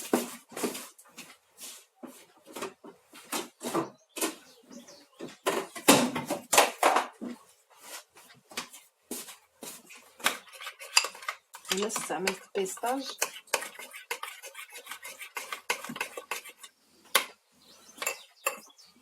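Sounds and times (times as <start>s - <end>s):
spoon scraping batter in bowl: 9.6s - 17.3s, 17.9s - 18.8s.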